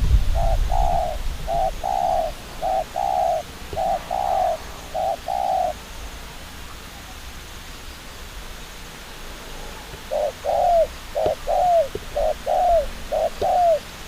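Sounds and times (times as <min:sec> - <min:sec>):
dove cooing: 0:00.1 - 0:05.9, 0:09.8 - 0:14.0.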